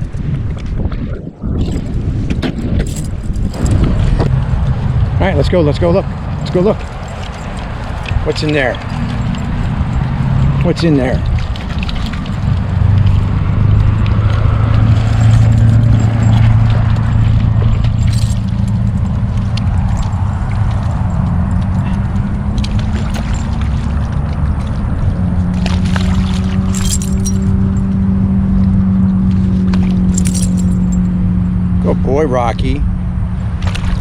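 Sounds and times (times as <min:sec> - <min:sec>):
vehicle engine humming: 0:02.6 - 0:34.0
metallic jingles: 0:06.0 - 0:13.0, 0:13.8 - 0:22.2, 0:23.0 - 0:24.0, 0:26.6 - 0:28.0, 0:30.0 - 0:31.2.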